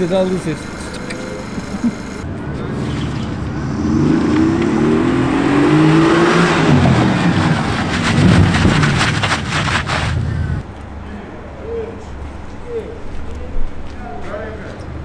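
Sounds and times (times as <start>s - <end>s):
car engine revving: 1.1s - 10.6s.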